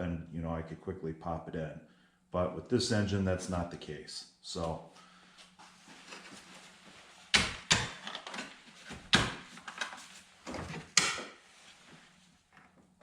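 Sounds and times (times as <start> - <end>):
faint steady hum: 0.0 - 13.0
tools knocking and clattering: 7.3 - 11.3.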